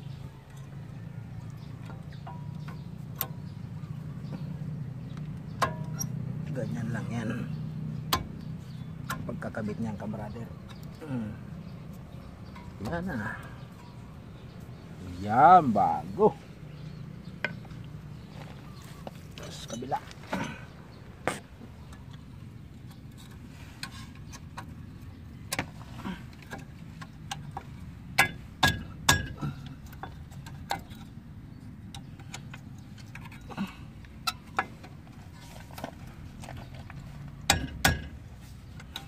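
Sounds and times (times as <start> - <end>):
sharp knocks: 37.5 - 38.2.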